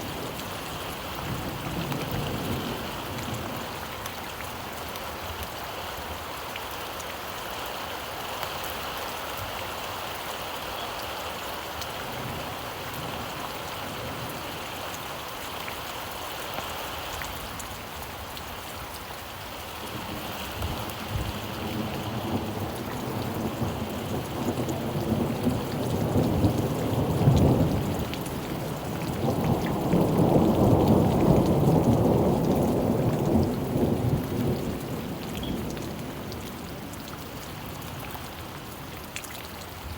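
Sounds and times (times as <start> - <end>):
steady rain: 0.0 - 39.9
thunder rumbling: 20.0 - 36.7.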